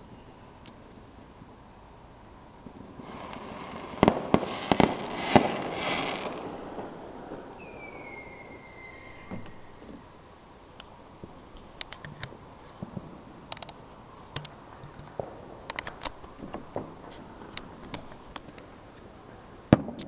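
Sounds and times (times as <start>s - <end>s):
fireworks popping and crackling: 2.6s - 10.1s, 11.2s - 13.8s, 14.5s - 20.0s.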